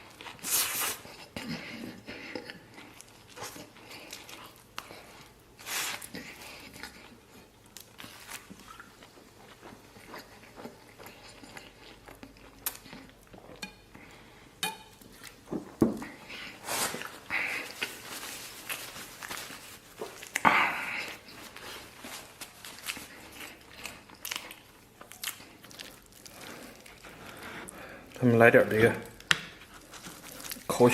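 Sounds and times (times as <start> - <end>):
person biting and chewing: 5.6 - 13.6, 16.6 - 27.4.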